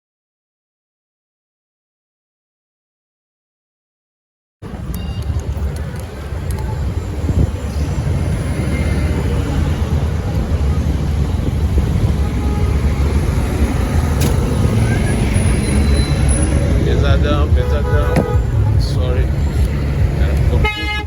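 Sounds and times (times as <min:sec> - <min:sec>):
city street traffic: 0:04.6 - 0:21.0
wind buffeting microphone: 0:04.6 - 0:21.0.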